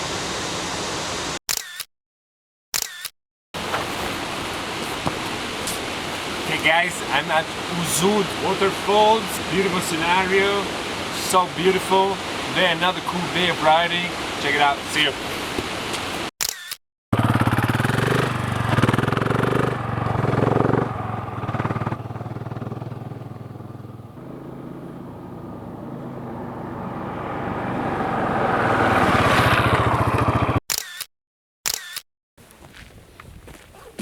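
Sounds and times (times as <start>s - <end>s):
motorcycle engine running: 17.1s - 26.2s, 29.6s - 30.6s.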